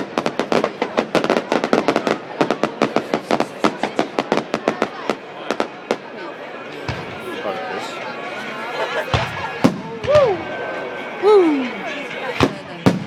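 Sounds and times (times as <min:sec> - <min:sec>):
fireworks cracking and popping: 0:00.0 - 0:07.3.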